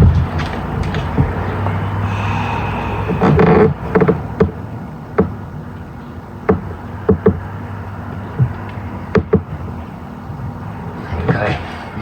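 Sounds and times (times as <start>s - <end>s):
low hum: 0.0s - 6.8s.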